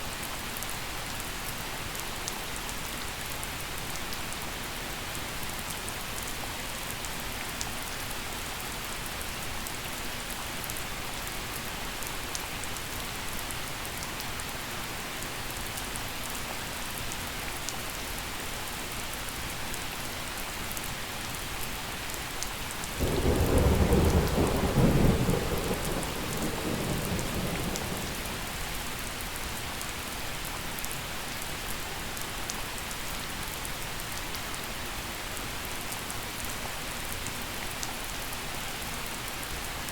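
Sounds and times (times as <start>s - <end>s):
gentle rain falling: 0.0s - 39.9s
thunder rumbling: 23.0s - 28.7s.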